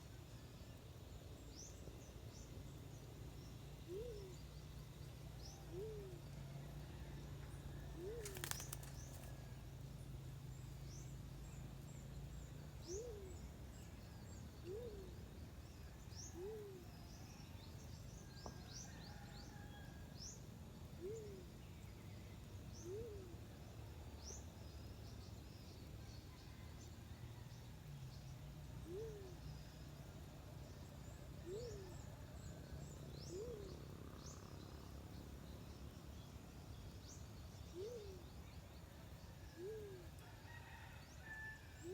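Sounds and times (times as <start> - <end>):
dove calling: 8.0 - 9.3
small birds chirping: 8.2 - 9.3.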